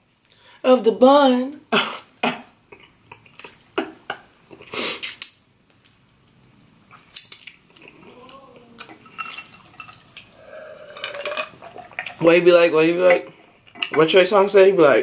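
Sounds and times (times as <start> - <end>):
chewing sticky pastry: 2.7 - 3.8, 4.5 - 12.2
wet mouth clicks and smacks: 2.8 - 3.8, 4.5 - 8.1.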